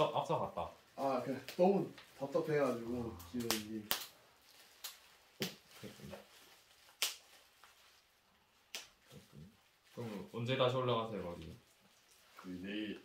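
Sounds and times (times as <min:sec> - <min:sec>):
person speaking: 0:00.0 - 0:04.1, 0:12.4 - 0:13.0.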